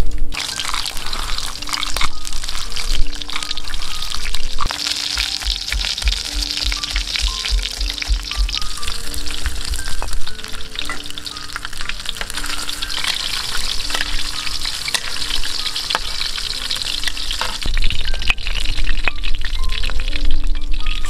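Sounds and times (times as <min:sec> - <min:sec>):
food sizzling in hot oil: 0:00.0 - 0:21.0
metal spatula scraping a pan: 0:00.4 - 0:06.0, 0:08.7 - 0:18.7.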